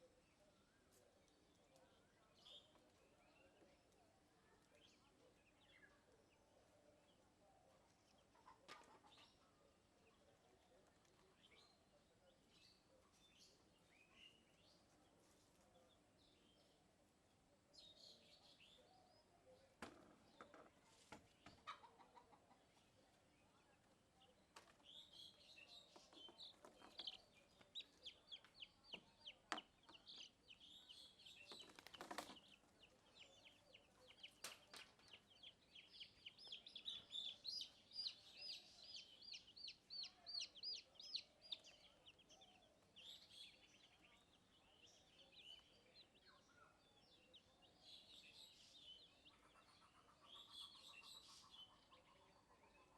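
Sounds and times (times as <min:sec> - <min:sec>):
chicks peeping: 0:20.9 - 0:46.3, 0:48.1 - 0:52.9.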